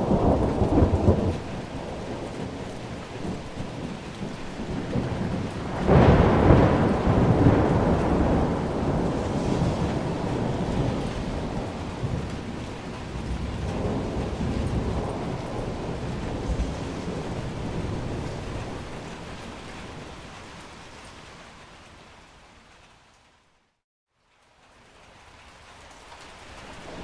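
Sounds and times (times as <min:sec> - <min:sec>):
thunder rumbling: 0:00.0 - 0:21.0
steady rain: 0:00.0 - 0:27.0.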